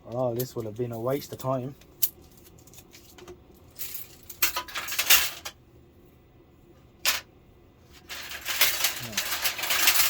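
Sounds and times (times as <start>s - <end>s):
thin strips rattling: 8.0s - 10.0s.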